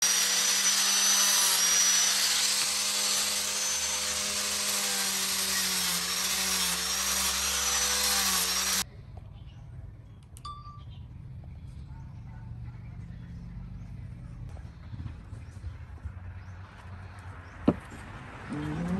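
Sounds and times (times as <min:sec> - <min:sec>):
hissing wood cut: 0:00.0 - 0:08.8
power tool motor hum: 0:00.0 - 0:08.8.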